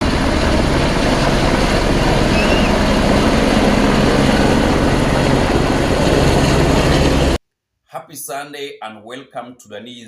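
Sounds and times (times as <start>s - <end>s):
helicopter rotor and engine: 0.0s - 7.4s.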